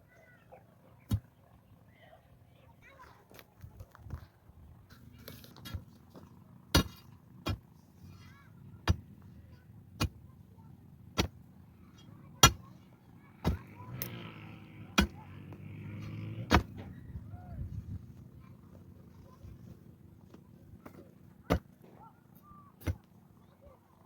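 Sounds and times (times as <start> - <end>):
hand tool striking hard material: 5.5 - 7.7, 8.8 - 9.2, 10.0 - 10.3, 11.1 - 11.4, 12.0 - 12.7, 13.4 - 14.1, 14.9 - 15.3, 16.4 - 16.9, 20.8 - 21.9, 22.8 - 23.1.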